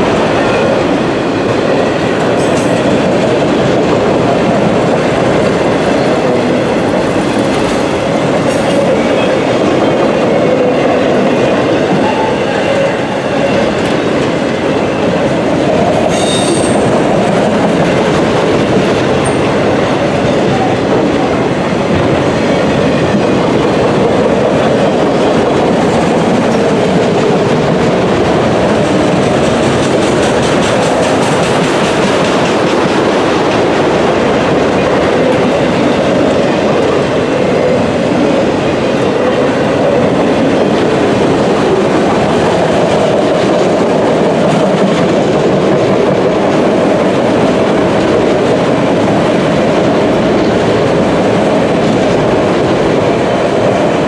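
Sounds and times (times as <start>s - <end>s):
freight train wheels rumbling: 0.0s - 54.0s
wheel squeal: 16.1s - 17.0s.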